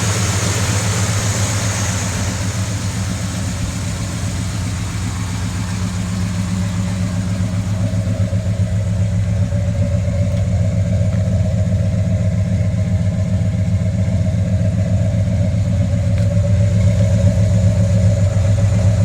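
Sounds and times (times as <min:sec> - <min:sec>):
pickup engine idling: 0:00.0 - 0:19.0.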